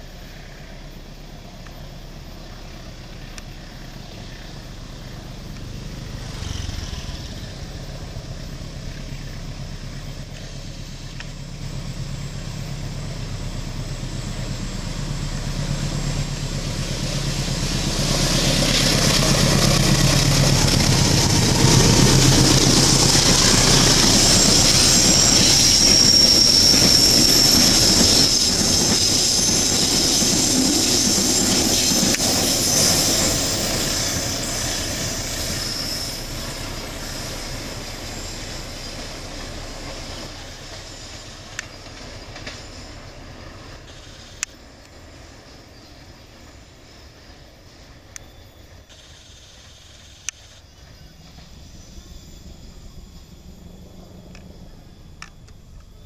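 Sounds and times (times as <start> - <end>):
diesel locomotive engine: 0.0 - 56.0
wheels rushing on rails: 0.0 - 56.0
wheels squealing: 13.4 - 56.0.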